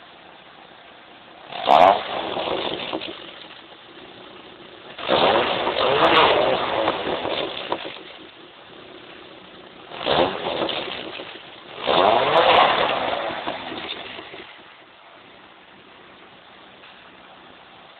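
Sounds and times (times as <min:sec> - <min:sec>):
engine idling: 0:00.0 - 0:17.9
engine revving: 0:01.4 - 0:14.8.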